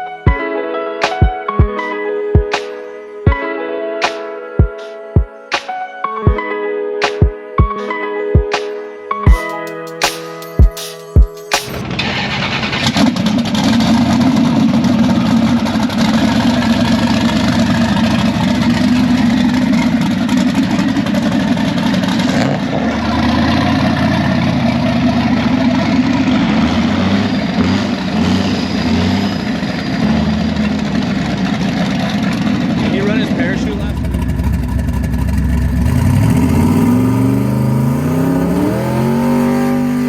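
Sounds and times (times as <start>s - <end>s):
car engine running: 11.7s - 40.0s.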